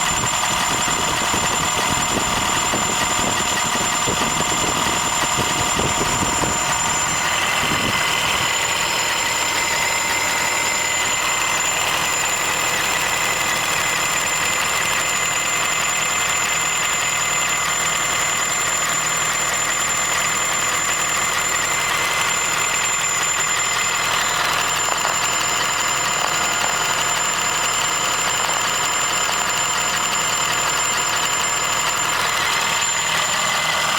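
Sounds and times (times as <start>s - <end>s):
car engine running: 0.0s - 33.9s
high whining tones: 0.0s - 33.9s.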